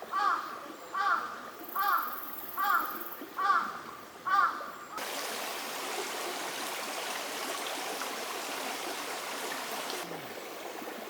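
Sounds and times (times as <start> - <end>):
stream water flowing: 5.0 - 11.0.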